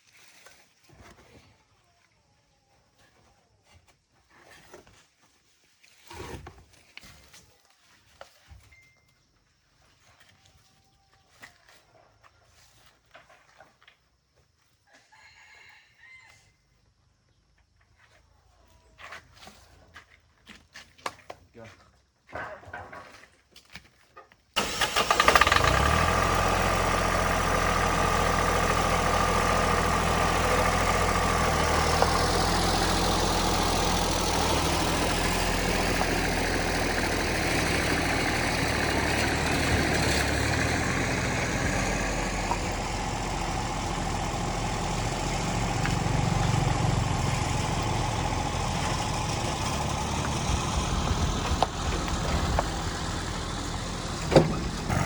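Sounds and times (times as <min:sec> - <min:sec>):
engine starting and idling: 0:24.6 - 0:55.0.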